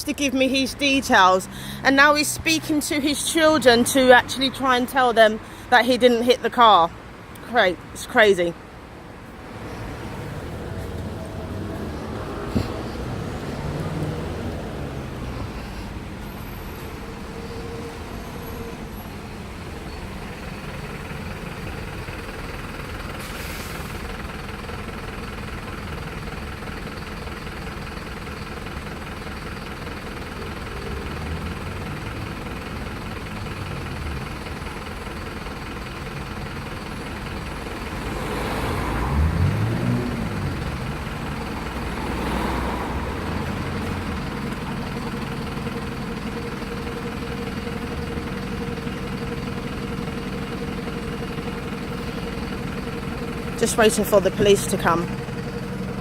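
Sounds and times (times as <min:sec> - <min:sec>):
road traffic hum: 0:00.0 - 0:56.0
vehicle passing: 0:00.5 - 0:05.8, 0:09.1 - 0:21.7, 0:37.6 - 0:45.9, 0:53.4 - 0:56.0.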